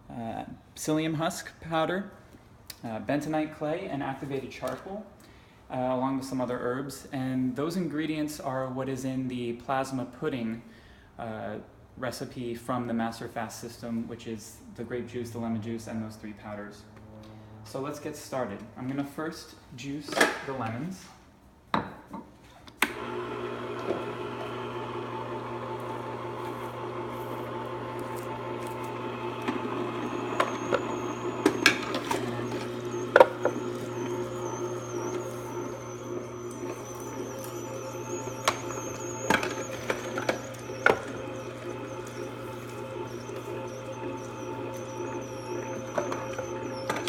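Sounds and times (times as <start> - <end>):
juicer motor humming: 22.8 - 47.0
thin high whine: 26.4 - 47.0.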